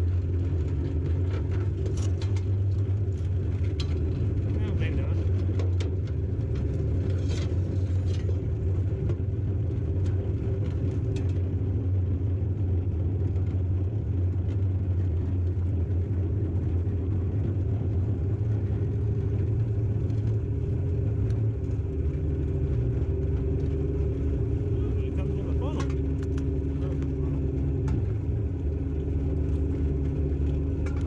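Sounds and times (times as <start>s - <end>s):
light clicks and rattles: 0.5s - 9.2s.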